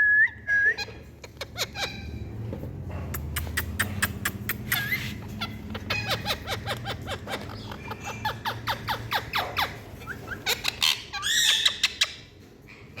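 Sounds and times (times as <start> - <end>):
parakeet chirping: 0.7 - 2.4, 3.2 - 13.0
parakeet warbling squawk: 3.7 - 12.2.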